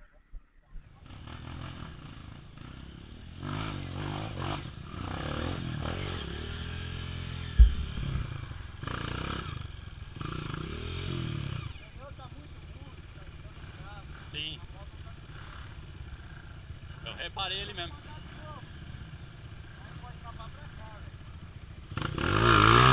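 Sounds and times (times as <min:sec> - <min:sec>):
dirt bike engine revving: 0:01.0 - 0:22.9
sharp thump: 0:07.5 - 0:08.8.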